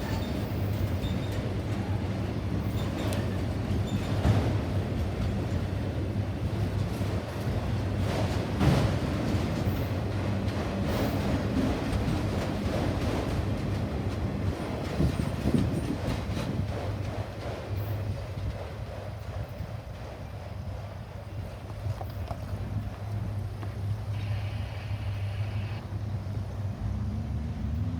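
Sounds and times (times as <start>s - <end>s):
wheels clicking on rail joints: 0.0s - 26.6s
train rumbling past: 0.0s - 27.9s.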